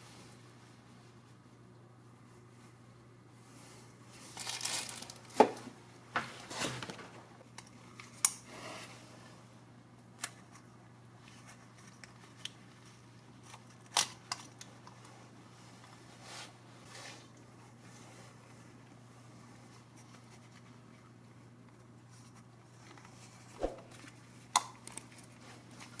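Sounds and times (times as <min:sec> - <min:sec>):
rustling swishes: 0:23.6 - 0:24.0.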